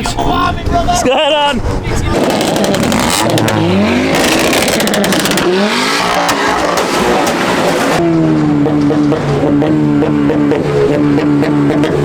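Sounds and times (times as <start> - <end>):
car engines revving: 0.6 - 12.0
sharp cracks: 2.1 - 8.0.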